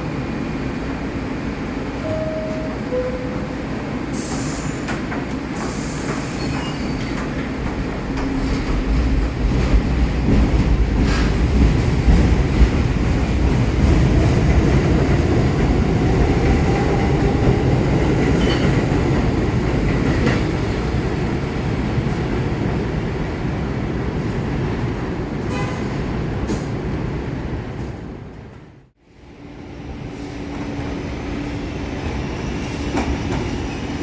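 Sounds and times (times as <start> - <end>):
subway train wheels rumbling: 0.0 - 34.0
rail joint clicks: 1.9 - 22.5, 23.4 - 28.7.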